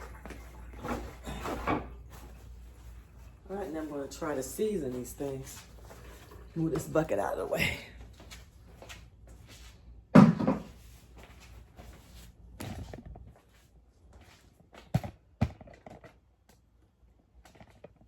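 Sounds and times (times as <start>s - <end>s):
kitchen knocks and thuds: 10.1s - 10.8s.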